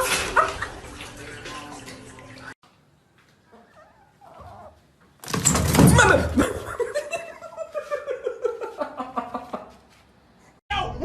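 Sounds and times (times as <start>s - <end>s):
person laughing loudly: 6.2s - 9.8s.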